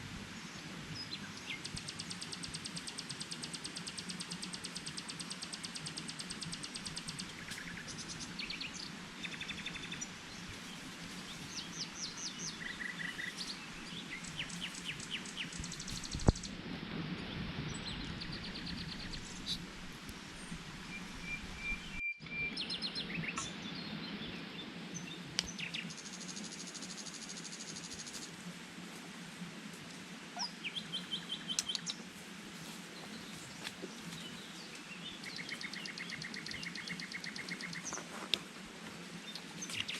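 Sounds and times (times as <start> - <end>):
birds chirping and trilling: 0.5 - 16.6, 17.2 - 19.8, 30.4 - 32.1, 32.9 - 38.3.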